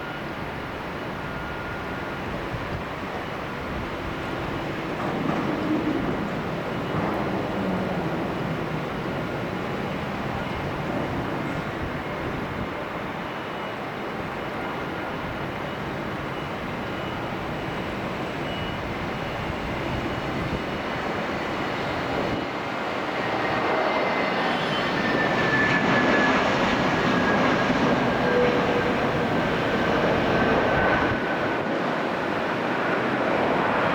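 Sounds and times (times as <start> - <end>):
jet engines rushing: 0.0 - 33.9.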